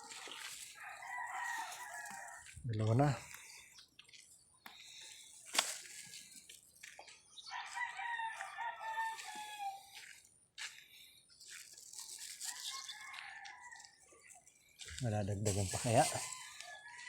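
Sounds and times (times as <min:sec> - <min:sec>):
rooster crowing: 0:00.7 - 0:02.5, 0:07.5 - 0:10.0, 0:12.4 - 0:14.0, 0:15.8 - 0:17.0.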